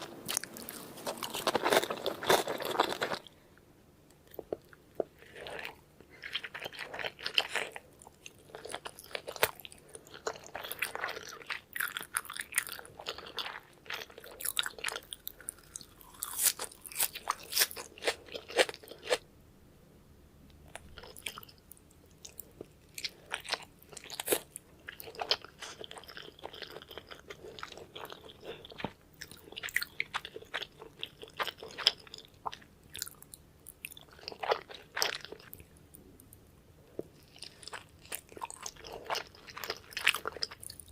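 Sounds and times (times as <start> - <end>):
wet chewing and mouth smacking: 20.7 - 36.4.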